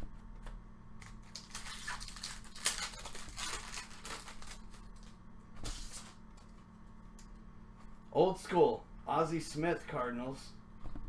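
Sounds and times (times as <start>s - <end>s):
card packs crinkling and tearing: 1.0s - 5.1s.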